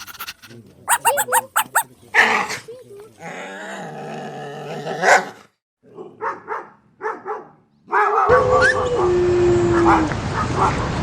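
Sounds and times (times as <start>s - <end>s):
dog barking: 0.0s - 1.9s, 5.0s - 5.4s, 6.0s - 8.5s, 10.4s - 11.0s
dog drawn-out call: 0.0s - 1.9s.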